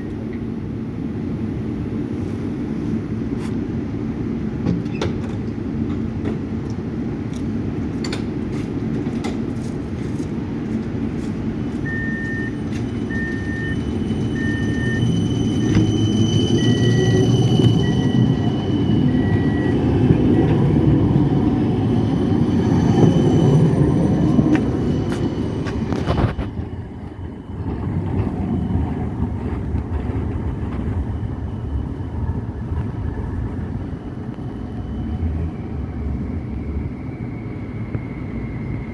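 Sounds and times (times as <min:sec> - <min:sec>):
tram electric drive whine: 0:00.0 - 0:38.9
tram rumble: 0:00.0 - 0:38.9
short beeps: 0:11.8 - 0:21.0.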